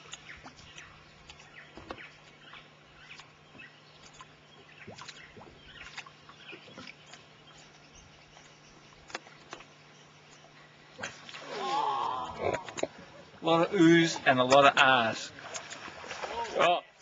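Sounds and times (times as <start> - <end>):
small birds chirping: 0.0 - 11.3
steady low hum: 0.0 - 16.3.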